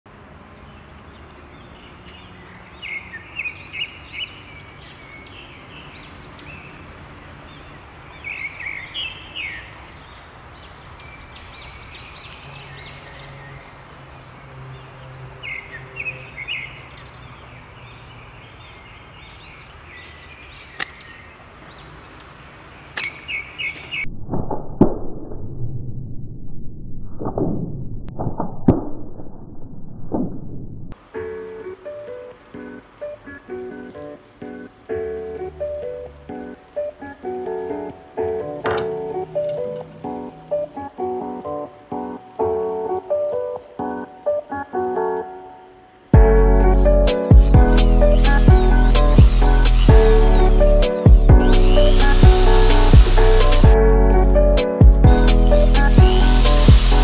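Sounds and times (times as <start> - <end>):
birds chirping: 0.1 - 24.1, 31.4 - 57.0
outdoor background noise: 0.1 - 57.0
sharp clicks: 20.8 - 21.0.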